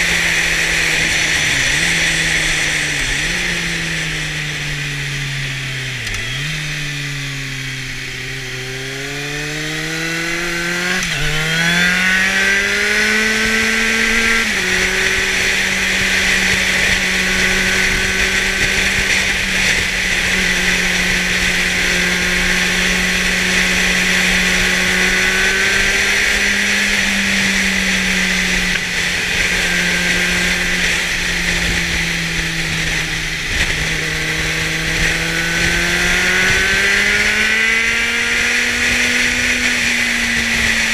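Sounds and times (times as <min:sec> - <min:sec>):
motorcycle engine accelerating: 0:00.0 - 0:40.9
wind rush on microphone: 0:09.4 - 0:40.9.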